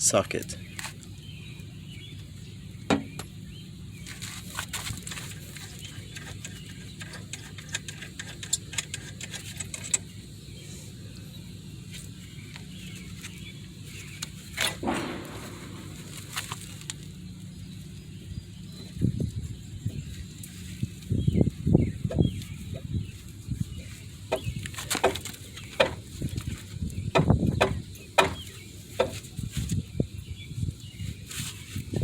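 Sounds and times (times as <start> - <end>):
steady low hum: 0.0 - 32.0
metal clank: 14.6 - 16.9.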